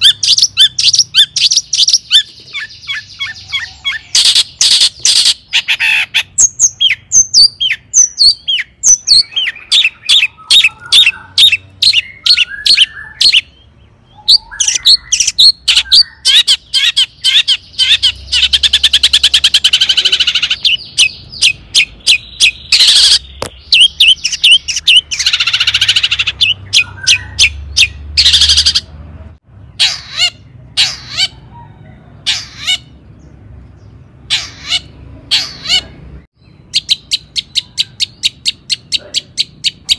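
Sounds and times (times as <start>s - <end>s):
shrike singing: 0.0s - 28.9s.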